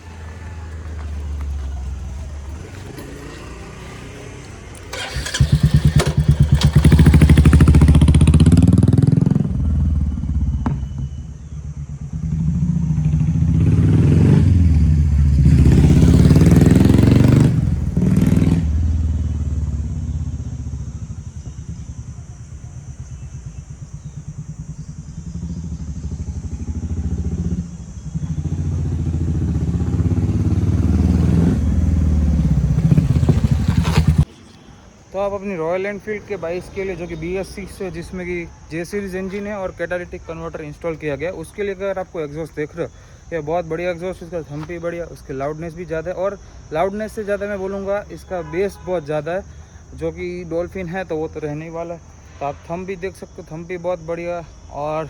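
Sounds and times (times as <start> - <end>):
motorcycle engine deep thump: 5.7 - 13.5, 15.2 - 34.3.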